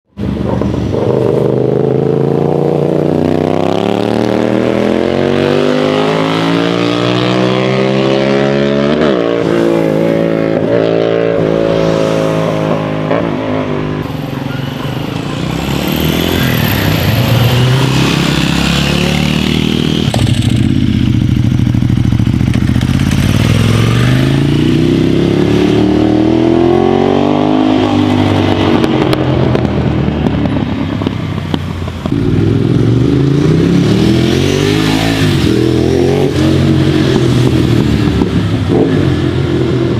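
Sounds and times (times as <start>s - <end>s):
motorcycle exhaust accelerating: 15.4s - 39.9s.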